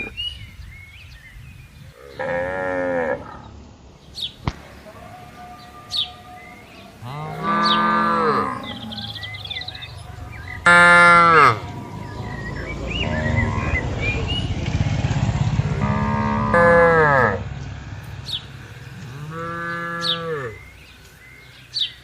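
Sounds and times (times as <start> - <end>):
cattle mooing: 2.0 - 3.5, 4.9 - 13.8, 15.7 - 17.5, 18.6 - 20.7.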